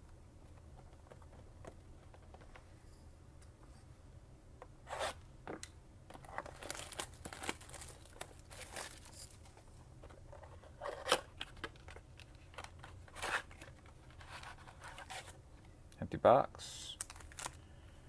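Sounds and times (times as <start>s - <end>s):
cardboard box and foil packs rustling: 6.2s - 9.7s, 17.0s - 17.6s
plastic wrap crinkling and tearing: 6.3s - 9.4s, 16.9s - 17.6s.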